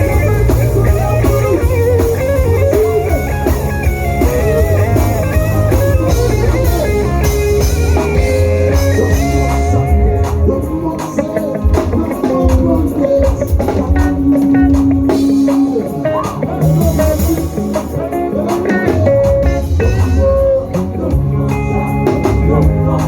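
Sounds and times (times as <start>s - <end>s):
bass and drum kit: 0.0s - 23.0s
electric guitar lines: 0.0s - 23.0s
people singing: 8.7s - 23.0s.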